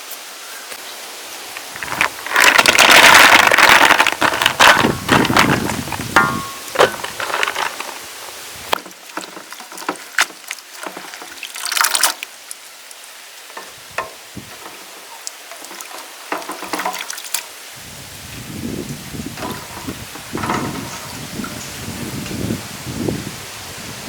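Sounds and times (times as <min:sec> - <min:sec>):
utensils clicking and knocking: 0:01.6 - 0:08.1, 0:13.5 - 0:17.5
liquid splashing: 0:01.6 - 0:17.7.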